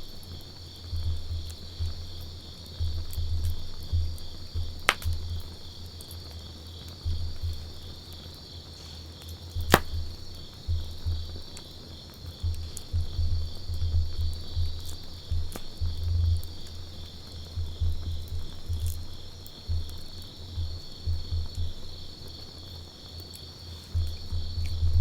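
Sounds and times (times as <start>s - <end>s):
campfire crackling: 0.0s - 25.0s
fire popping: 0.0s - 25.0s.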